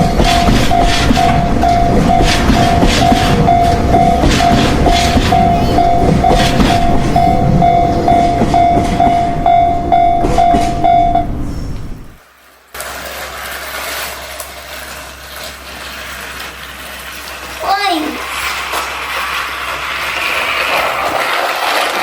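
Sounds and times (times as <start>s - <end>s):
toy train motor whir: 0.0s - 7.8s, 12.4s - 22.0s
pulsing tone: 0.0s - 11.7s.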